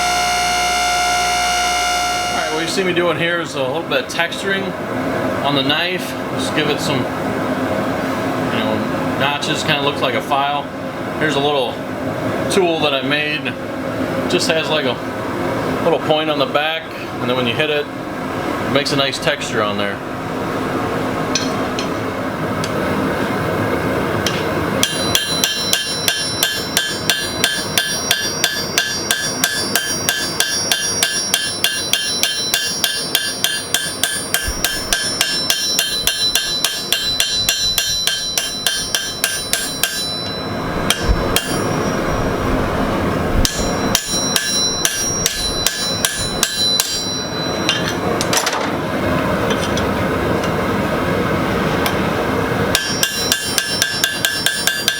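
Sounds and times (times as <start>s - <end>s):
hammer striking metal punch: 24.2s - 42.3s, 43.4s - 48.7s, 52.7s - 54.9s.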